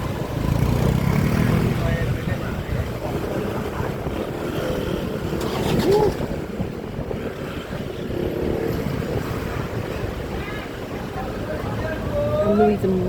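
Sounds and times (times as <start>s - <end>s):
motorbike running: 0.0s - 11.0s
wind noise on microphone: 0.0s - 13.0s.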